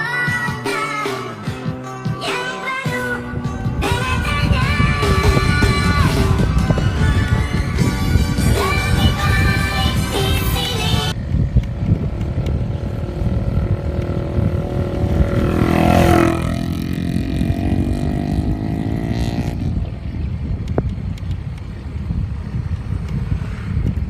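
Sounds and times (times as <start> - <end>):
wind rumble on microphone: 3.0 - 24.0
vehicle engine passing by: 12.0 - 19.8.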